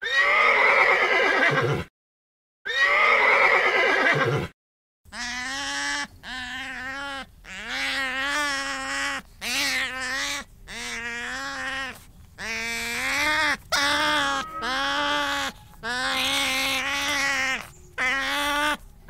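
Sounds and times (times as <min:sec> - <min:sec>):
sea otters whining squeals: 0:05.2 - 0:18.8.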